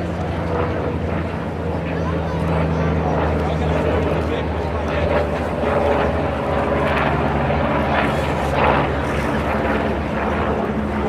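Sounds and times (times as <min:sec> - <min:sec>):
aircraft engine humming: 0:00.0 - 0:11.0.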